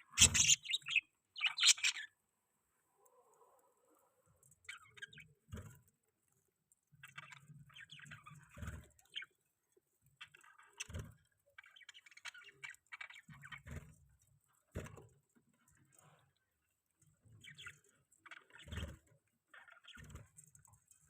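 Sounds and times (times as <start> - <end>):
budgerigars chirping: 0.0 - 2.1.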